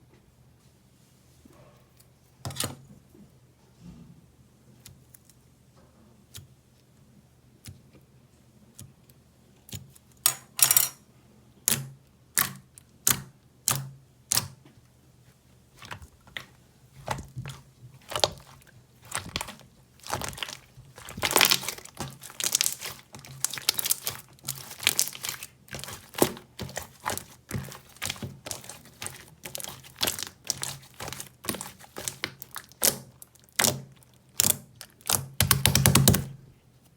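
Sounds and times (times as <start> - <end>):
squishy toy crackling: 18.0 - 35.4.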